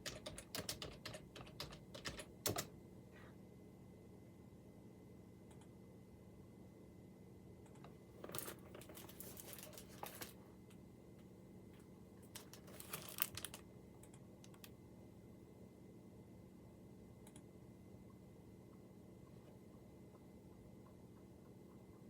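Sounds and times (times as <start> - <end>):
computer keyboard typing: 0.0 - 2.7
faint steady hum: 0.0 - 22.0.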